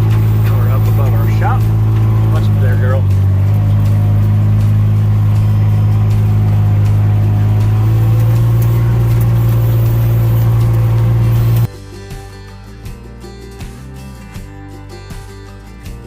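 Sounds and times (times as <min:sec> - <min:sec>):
diesel engine droning: 0:00.0 - 0:11.7.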